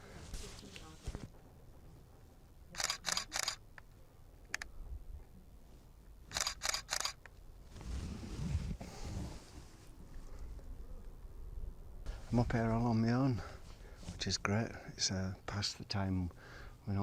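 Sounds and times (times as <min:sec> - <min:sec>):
camera shutter firing: 0:02.8 - 0:03.7, 0:06.3 - 0:07.2.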